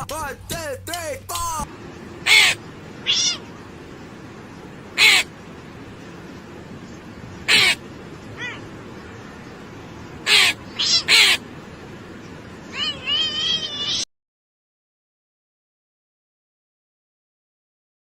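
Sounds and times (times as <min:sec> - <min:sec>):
short harsh animal calls: 0:02.2 - 0:03.5, 0:05.0 - 0:05.3, 0:07.5 - 0:07.8, 0:10.2 - 0:11.4.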